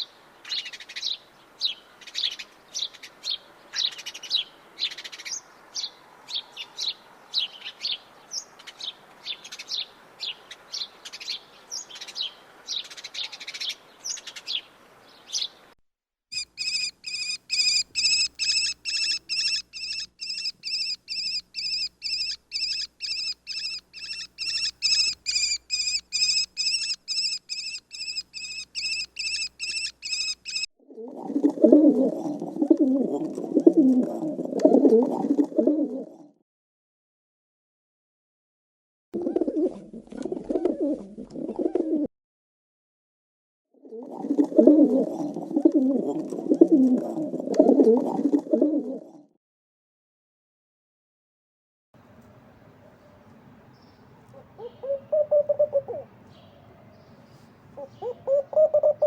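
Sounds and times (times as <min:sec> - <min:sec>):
bird repeated even chirps: 0:16.4 - 0:30.7
songbird high chirps: 0:16.4 - 0:30.7, 0:53.0 - 0:59.0.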